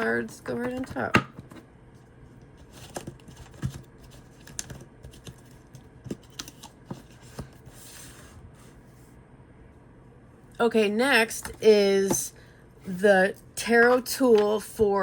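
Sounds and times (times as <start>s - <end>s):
cards and book clicking and tapping: 2.6s - 7.6s.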